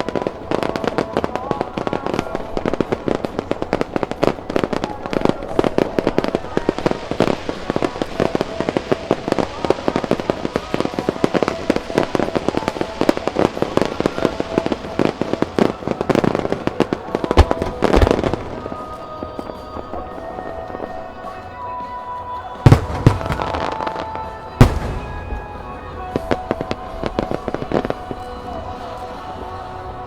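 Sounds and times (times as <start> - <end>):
music over sound system: 0.0 - 30.0
firework shells bursting: 0.1 - 29.7
deep firework booms: 11.9 - 19.4, 22.6 - 28.7.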